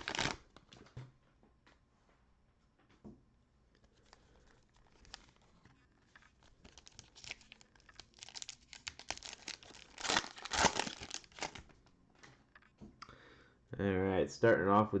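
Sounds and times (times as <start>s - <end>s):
cellophane wrapper crinkling: 0.0s - 0.5s, 3.7s - 11.9s.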